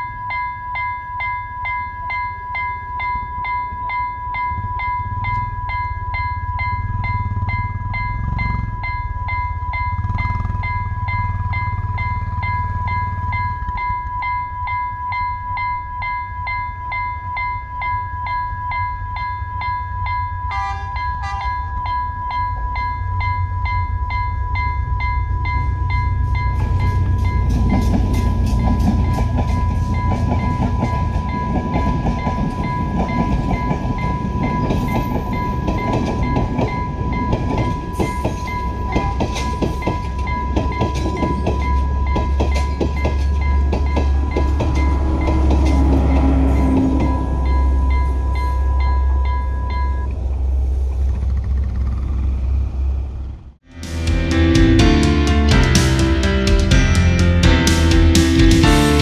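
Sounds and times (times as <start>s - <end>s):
level crossing alarm tone: 0.0s - 50.1s
train horn toots: 20.5s - 21.7s, 44.0s - 47.4s
train wheels clattering over joints: 26.4s - 48.2s
deep engine rumble: 44.1s - 59.0s.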